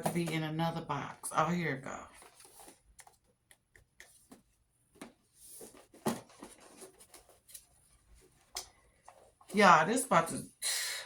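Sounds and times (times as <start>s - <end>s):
cardboard clicks and rustles: 2.1s - 9.6s
cardboard scrape: 5.3s - 8.4s.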